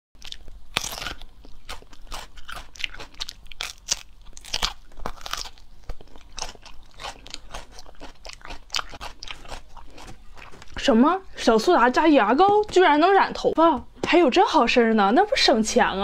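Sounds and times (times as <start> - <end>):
crisp chewing crunches: 0.2 - 10.9.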